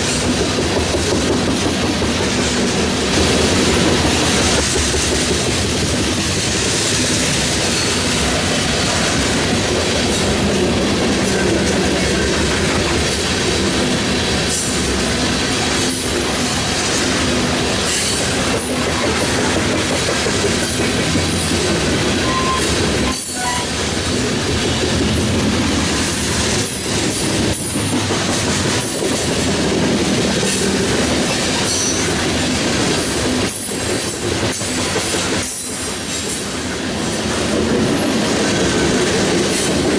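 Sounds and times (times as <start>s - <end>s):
freight cars rolling on rails: 0.0s - 39.9s
wheels clicking over rail joints: 9.4s - 36.4s.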